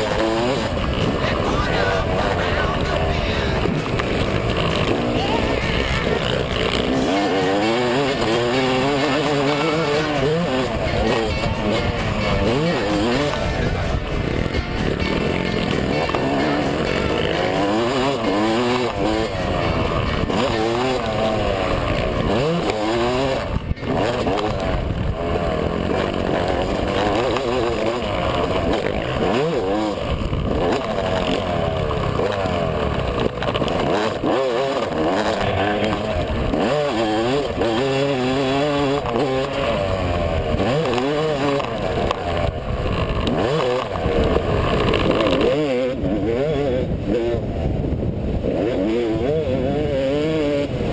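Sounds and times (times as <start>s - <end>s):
motocross engine revving: 0.0s - 50.9s.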